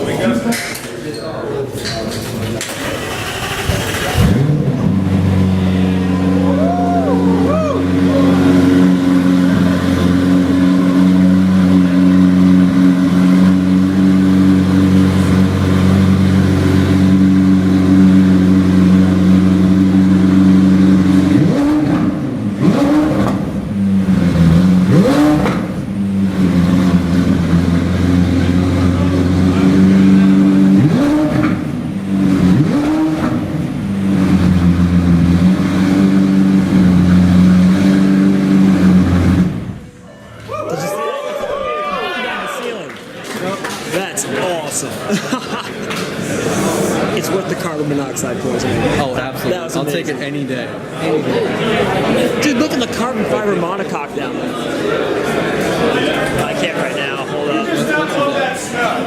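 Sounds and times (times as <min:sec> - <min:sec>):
car engine idling and revving: 0:02.6 - 0:40.0.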